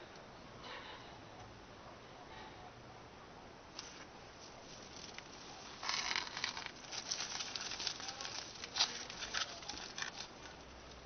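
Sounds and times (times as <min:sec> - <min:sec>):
wrapping rustling and crackling: 0:03.8 - 0:11.0.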